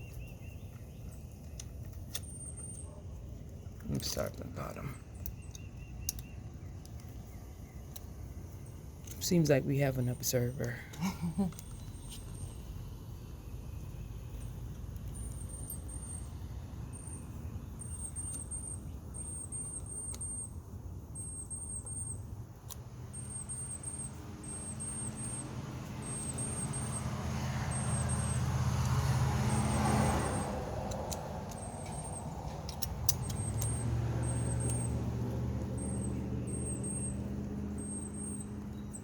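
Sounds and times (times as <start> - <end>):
vehicle engine passing: 24.0 - 39.0.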